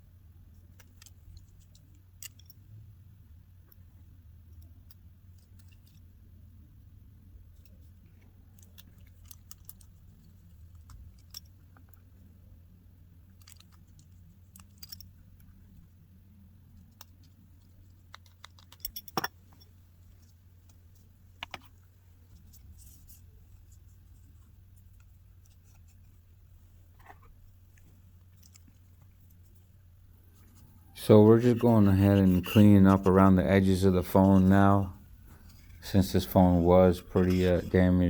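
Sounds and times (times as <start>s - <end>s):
steady low hum: 0.0s - 38.0s
small tools clicking and tapping: 0.8s - 2.6s, 7.6s - 12.0s, 13.3s - 15.6s, 16.8s - 20.8s.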